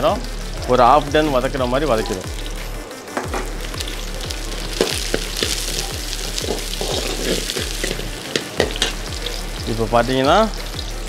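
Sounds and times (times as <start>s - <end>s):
onions sizzling in oil: 0.0s - 11.0s
metal ladle scraping and knocking: 4.8s - 9.0s.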